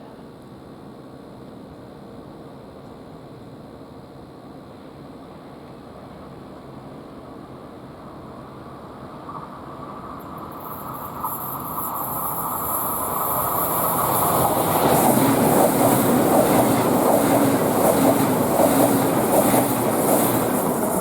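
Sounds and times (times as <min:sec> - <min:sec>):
train wheels rumbling on rails: 0:09.1 - 0:21.0.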